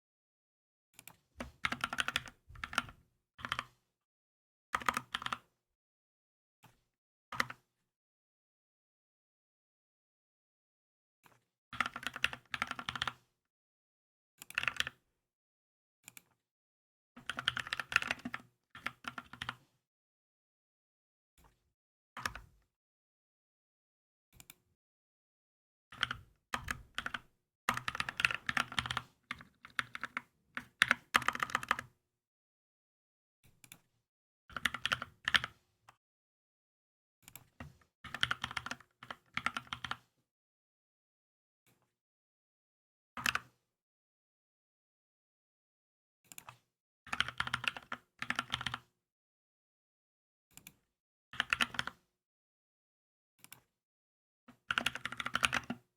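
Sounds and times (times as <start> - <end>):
mechanical keyboard typing: 1.0 - 3.7, 11.8 - 13.2, 17.2 - 19.6, 26.0 - 31.9, 34.5 - 35.5, 38.1 - 40.0, 47.1 - 48.8, 51.4 - 52.0, 54.7 - 55.8.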